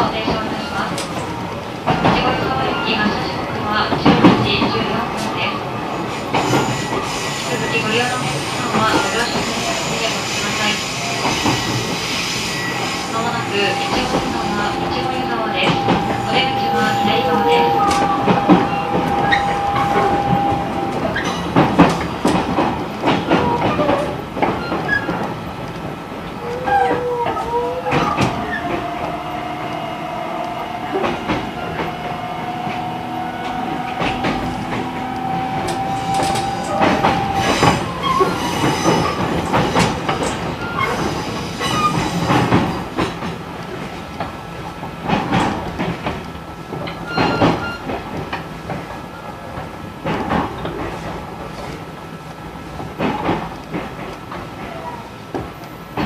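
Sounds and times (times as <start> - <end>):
train wheels clicking over rail joints: 17.8 - 56.0.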